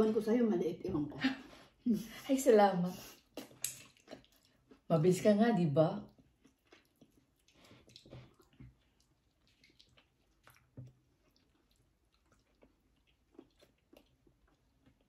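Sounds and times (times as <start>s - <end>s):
soft wet chewing: 2.9s - 5.4s, 6.0s - 15.0s.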